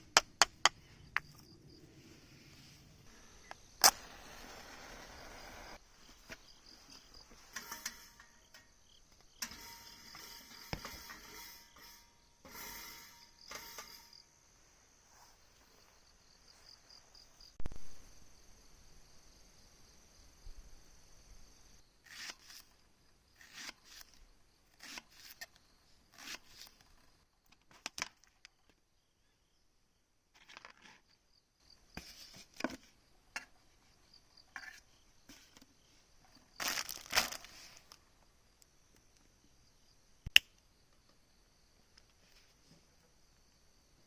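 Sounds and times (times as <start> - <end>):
insects chirring: 0.1 - 27.6, 28.6 - 44.0
crunching and crumpling: 36.6 - 38.0
sharp click: 40.2 - 40.6.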